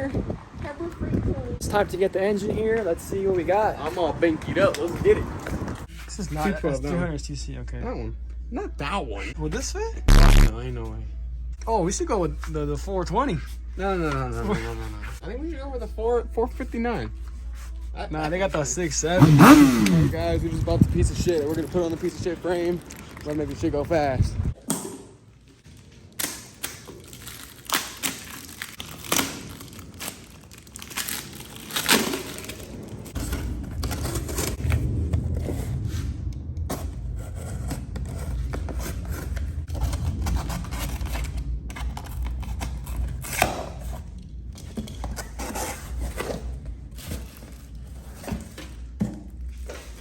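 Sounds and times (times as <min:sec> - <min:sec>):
steady low rumble: 0:20.1 - 0:22.5, 0:33.1 - 0:43.2
packaging crinkling and tearing: 0:21.2 - 0:24.1, 0:25.7 - 0:33.2.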